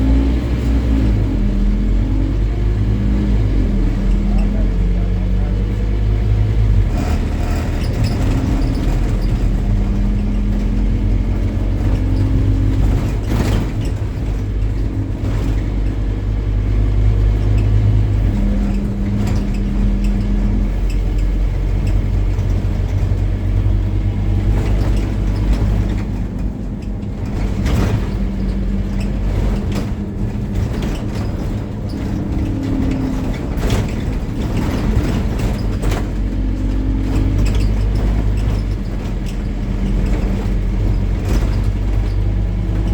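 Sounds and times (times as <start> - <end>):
bus diesel engine running: 0.0 - 42.9.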